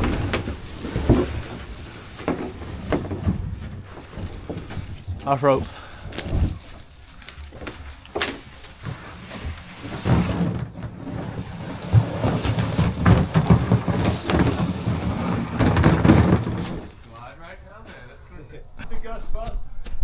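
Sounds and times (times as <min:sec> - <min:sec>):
gear scraping against rock: 0:08.6 - 0:17.1.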